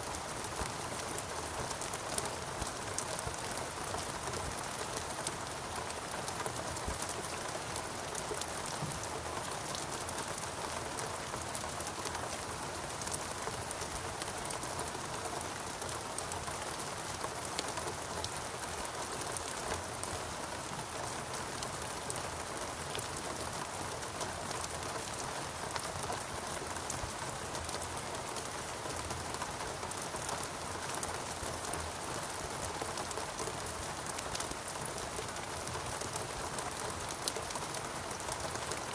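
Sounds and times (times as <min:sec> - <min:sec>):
steady rainfall: 0:00.0 - 0:38.9.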